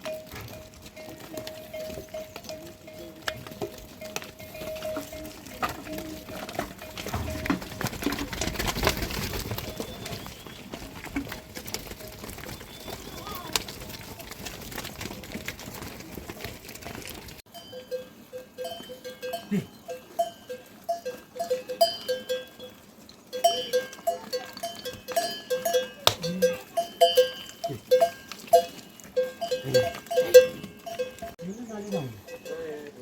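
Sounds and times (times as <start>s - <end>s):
livestock bells clanking: 0.0s - 33.0s
low animal calls: 12.3s - 13.7s.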